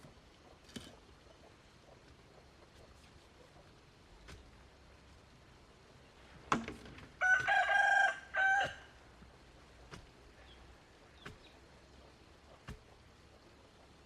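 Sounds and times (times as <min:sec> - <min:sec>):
rooster crowing: 0:07.2 - 0:09.0.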